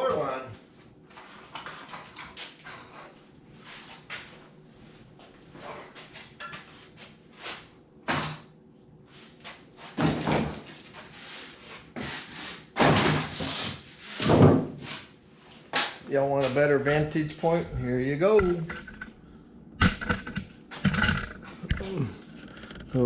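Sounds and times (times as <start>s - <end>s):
knocks and bumps: 19.8s - 21.9s.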